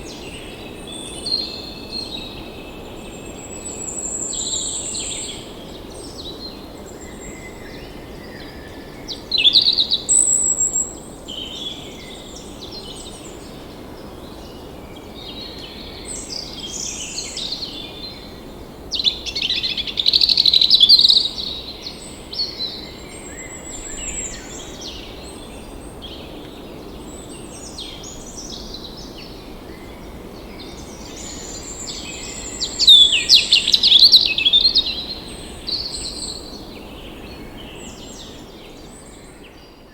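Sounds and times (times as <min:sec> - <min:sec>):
steady background hiss: 0:00.0 - 0:39.9
songbirds chirping and singing: 0:19.0 - 0:39.9.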